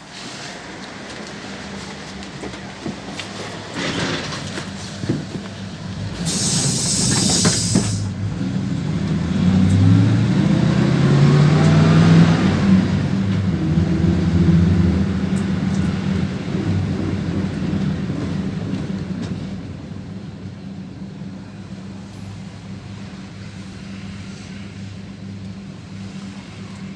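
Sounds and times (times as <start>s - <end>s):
bus engine accelerating: 0.0s - 26.9s
compressed air hiss: 6.2s - 8.1s.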